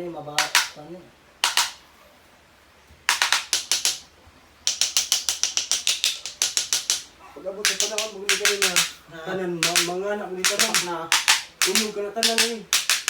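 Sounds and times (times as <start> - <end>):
sharp clicking taps: 0.4 - 0.8, 1.4 - 1.8, 3.1 - 9.0, 9.6 - 13.0.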